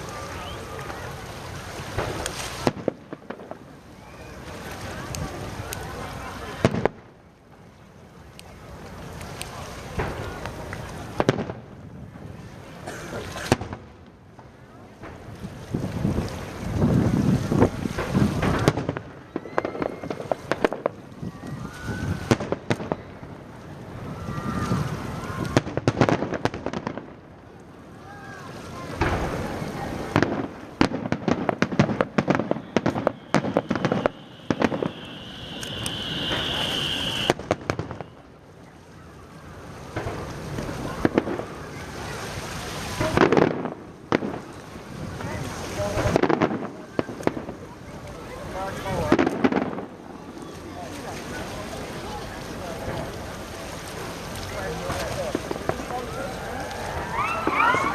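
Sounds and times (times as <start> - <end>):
firework whistle: 0.0 - 1.0, 3.9 - 4.7, 18.4 - 23.2, 31.6 - 38.4, 56.0 - 57.9
fireworks exploding: 0.0 - 7.6, 9.2 - 21.4, 22.0 - 24.0, 24.7 - 27.4, 28.8 - 38.5, 39.9 - 47.7, 48.9 - 50.3, 54.4 - 56.2, 56.9 - 57.9.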